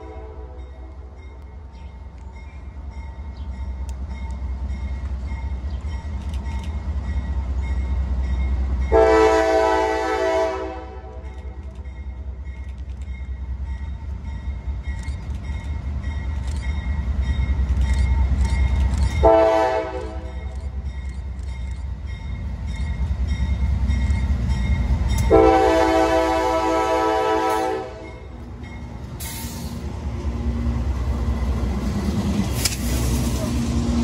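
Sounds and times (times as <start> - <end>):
locomotive air horn blast: 0.0 - 0.9, 8.9 - 11.3, 19.2 - 20.5, 25.3 - 28.2
diesel locomotive engine rumble: 0.0 - 34.0.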